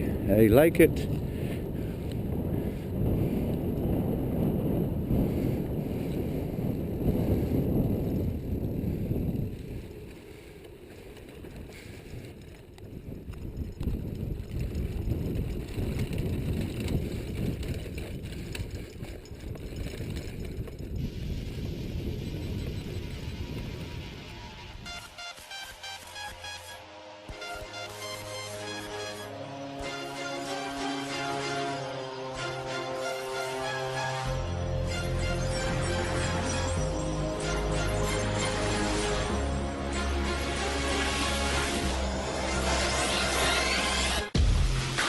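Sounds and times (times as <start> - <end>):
wind rumbling on microphone: 0.0 - 25.1
mountain bike being ridden: 0.1 - 44.0.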